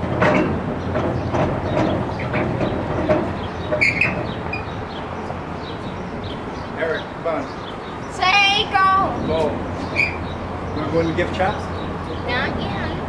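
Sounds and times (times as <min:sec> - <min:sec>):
train clanks and knocks: 0:00.0 - 0:07.5
train rumbling: 0:00.0 - 0:13.0
short high squeaks: 0:03.6 - 0:04.8, 0:09.9 - 0:10.3.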